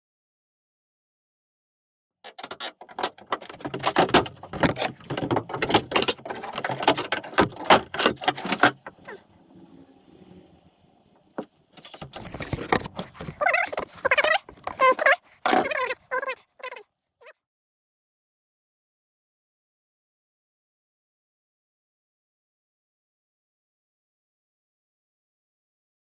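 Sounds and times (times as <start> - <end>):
building materials clattering: 2.3 - 10.3, 11.2 - 15.9.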